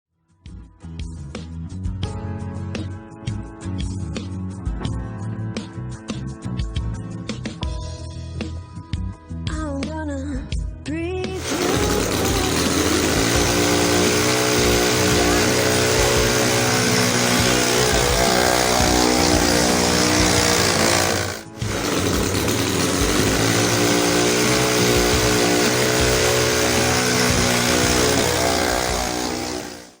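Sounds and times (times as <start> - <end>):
two-stroke engine running: 11.4 - 30.0.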